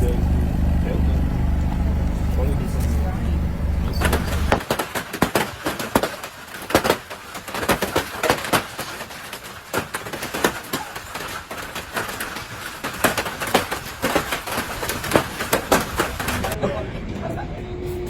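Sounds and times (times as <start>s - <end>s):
hailstones clattering on hard surface: 4.0s - 16.6s.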